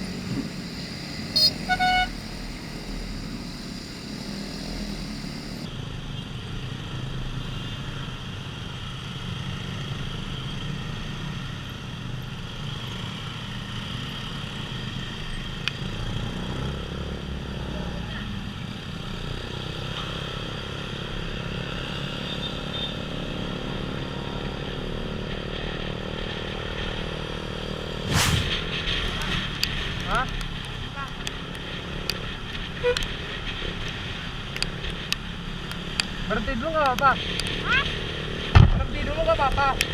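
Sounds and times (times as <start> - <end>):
motorcycle engine running: 0.0 - 5.7
road and wind noise: 0.0 - 39.9.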